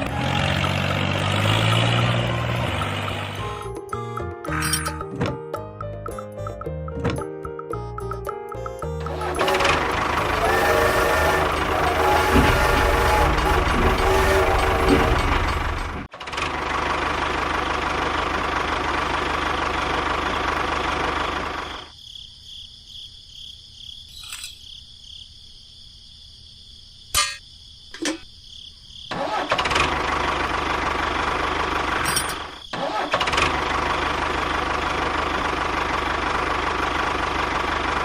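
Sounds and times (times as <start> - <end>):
small engine running: 9.0 - 21.9, 29.1 - 38.0.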